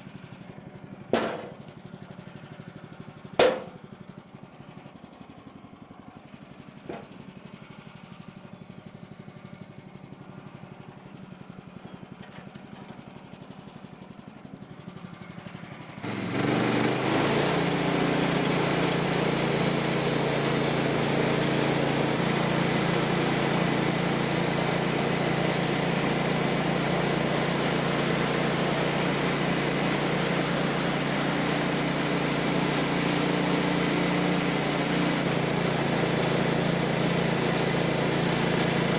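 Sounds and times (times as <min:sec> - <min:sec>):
sawmill engine running: 0:16.0 - 0:38.9.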